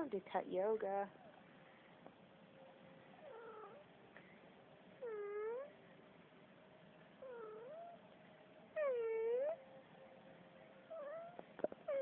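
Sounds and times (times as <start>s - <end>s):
cat meowing: 3.3s - 3.8s, 7.2s - 8.0s, 10.9s - 12.0s.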